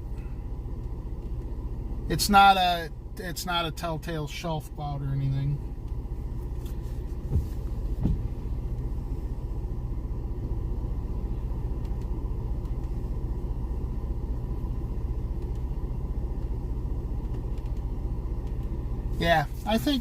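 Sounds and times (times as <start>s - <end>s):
vehicle engine rumbling: 0.0s - 20.0s
short thumps: 6.6s - 8.5s.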